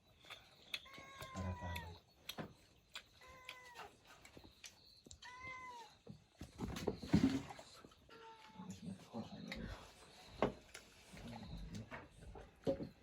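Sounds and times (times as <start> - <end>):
cat meowing: 0.8 - 2.0, 3.2 - 3.9, 5.2 - 6.0.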